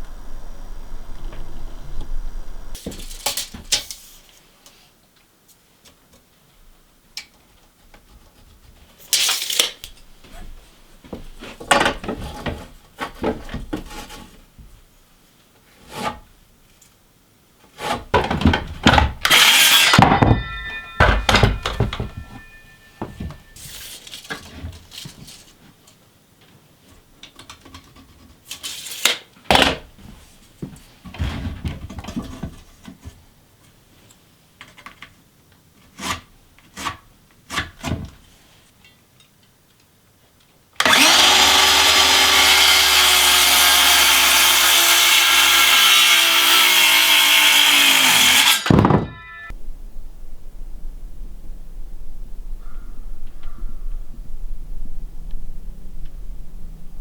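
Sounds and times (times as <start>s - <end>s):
boards knocking and thudding: 17.8s - 22.4s, 48.7s - 49.2s
brief metallic ring: 19.8s - 23.9s.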